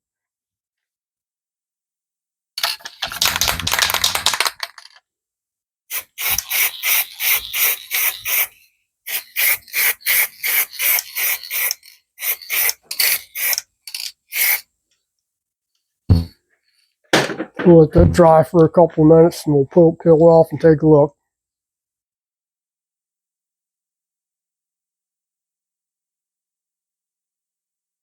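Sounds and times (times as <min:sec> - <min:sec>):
aerosol can spraying: 0:05.9 - 0:14.7.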